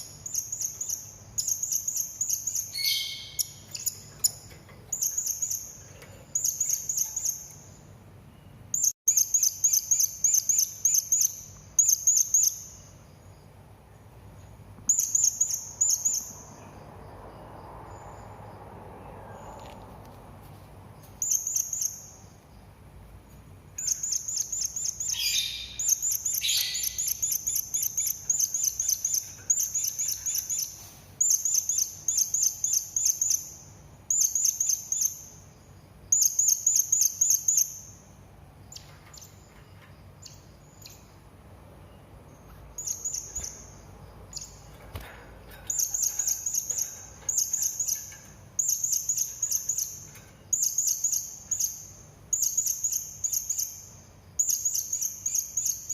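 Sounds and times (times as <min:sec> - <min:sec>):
parrot chirping shrilly: 0:25.1 - 0:27.3.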